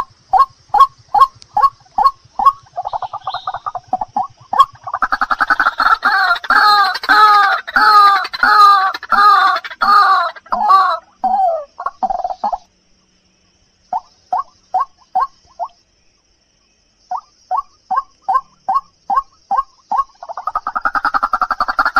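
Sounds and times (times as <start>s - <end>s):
waterhen calling harsh notes: 0.4s - 12.0s.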